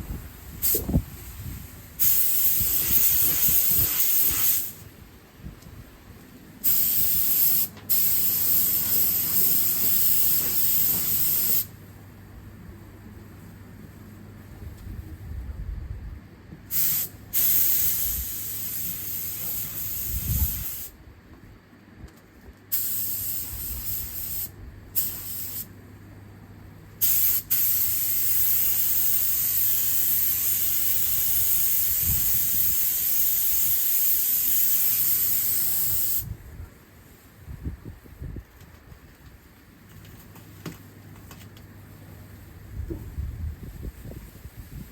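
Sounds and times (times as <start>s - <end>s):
paint spray gun hissing: 2.0s - 4.8s, 6.6s - 11.7s, 16.7s - 20.9s, 22.7s - 25.7s, 27.0s - 36.3s.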